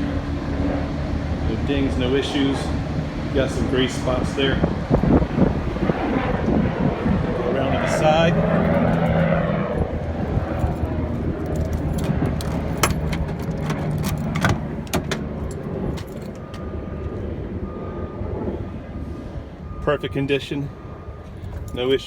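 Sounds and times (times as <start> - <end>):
sharp clicks and knocks: 11.4 - 16.6.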